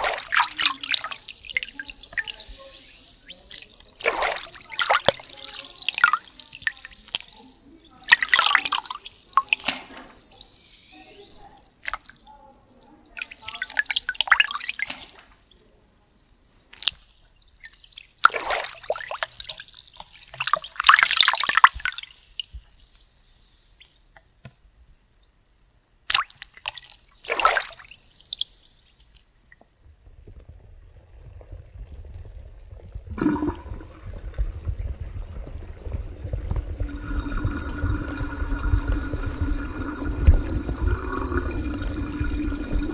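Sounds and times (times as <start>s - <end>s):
bath water splashing: 0.0s - 24.8s, 26.1s - 29.8s, 33.1s - 42.9s
low rumble of moving water: 29.8s - 42.9s.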